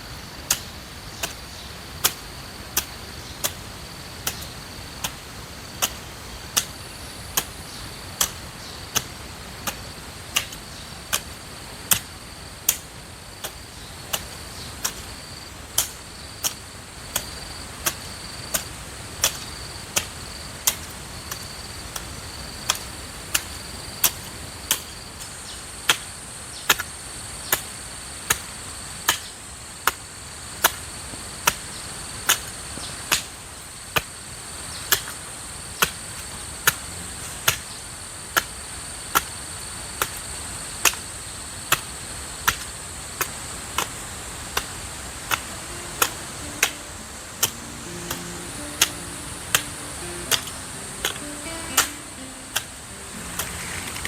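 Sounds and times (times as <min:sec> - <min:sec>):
insects droning: 0:00.0 - 0:54.0
hoe striking the ground: 0:04.2 - 0:05.2, 0:12.7 - 0:15.2, 0:15.8 - 0:21.4.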